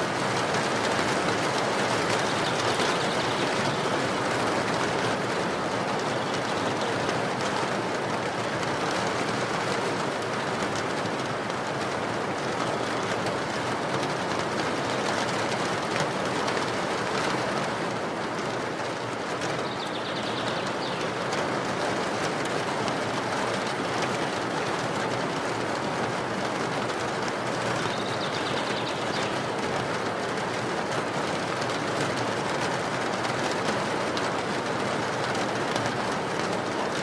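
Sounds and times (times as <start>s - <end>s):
steady rainfall: 0.0s - 37.0s
bird chirping: 2.1s - 4.0s, 19.6s - 21.3s, 27.9s - 29.4s.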